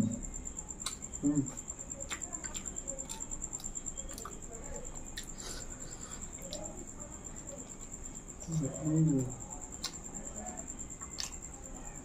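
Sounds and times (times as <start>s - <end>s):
chewing: 0.8s - 6.9s, 7.6s - 11.6s
mouth clicks and lip smacks: 9.8s - 10.0s, 11.0s - 11.4s.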